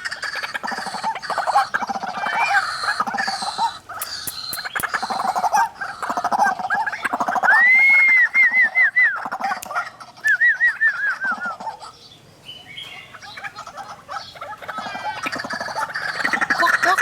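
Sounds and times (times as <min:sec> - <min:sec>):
lower chattering bird calls: 0:00.0 - 0:17.0
waterhens hooting: 0:00.0 - 0:17.0.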